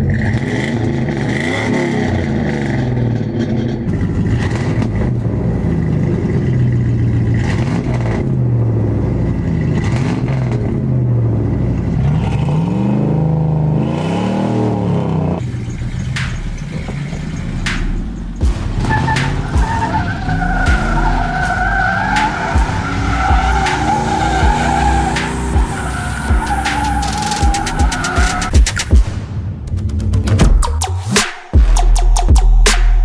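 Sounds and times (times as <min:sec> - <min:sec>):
engine revving: 0:00.0 - 0:29.0.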